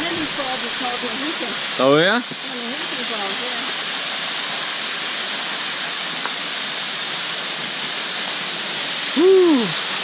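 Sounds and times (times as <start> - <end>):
waterfall rushing: 0.0 - 10.0
person whooping: 9.1 - 9.8.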